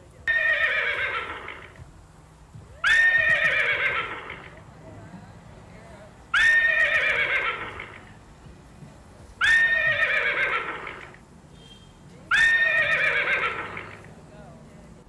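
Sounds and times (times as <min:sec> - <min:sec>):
horse whinnying: 0:00.3 - 0:01.8, 0:02.8 - 0:04.6, 0:06.4 - 0:08.1, 0:09.4 - 0:11.2, 0:12.3 - 0:14.1.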